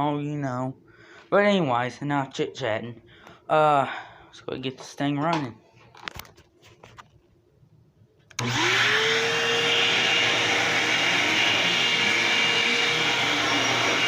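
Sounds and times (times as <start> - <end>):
vacuum cleaner motor whining: 8.4 - 14.0.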